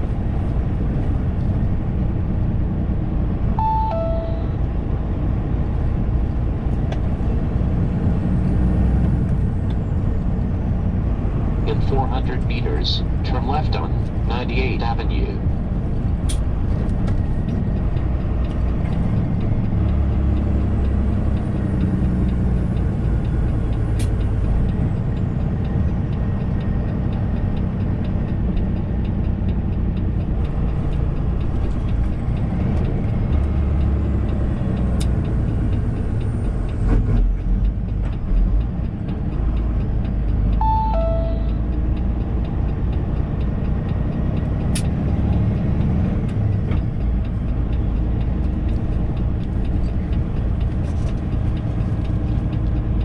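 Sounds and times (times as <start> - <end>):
truck engine and road noise: 0.0 - 53.0
two-note chime: 3.6 - 4.7, 40.6 - 41.8.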